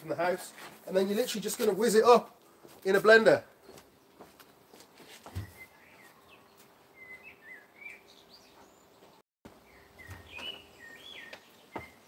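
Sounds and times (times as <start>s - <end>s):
small birds chirping: 3.5s - 12.0s.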